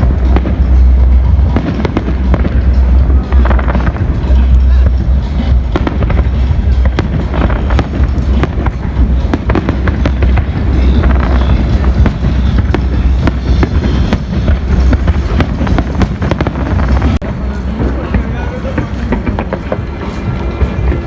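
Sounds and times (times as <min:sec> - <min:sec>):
fireworks bangs and crackles: 0:00.0 - 0:21.0
low rumble: 0:00.0 - 0:21.0.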